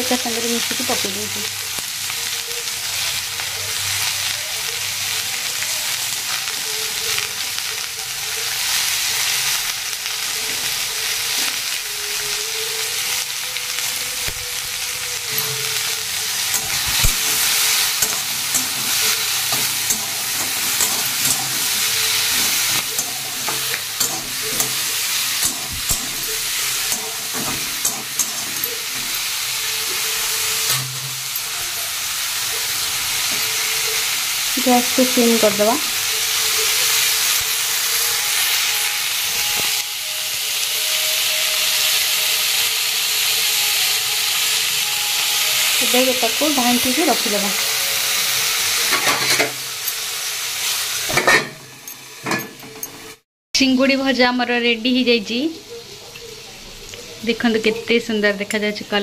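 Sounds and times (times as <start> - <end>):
vegetables sizzling in oil: 0.0 - 59.0
spatula scraping a pan: 15.3 - 32.0.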